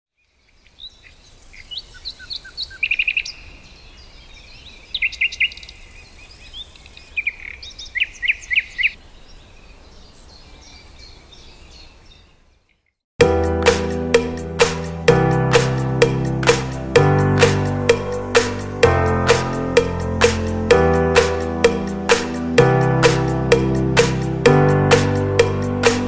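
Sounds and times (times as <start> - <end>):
songbirds singing and chirping: 0.1 - 13.0
faint outdoor background: 0.1 - 26.0.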